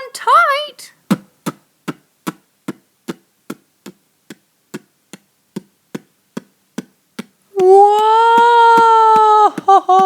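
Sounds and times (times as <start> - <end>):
person shouting whoa: 7.6 - 10.0.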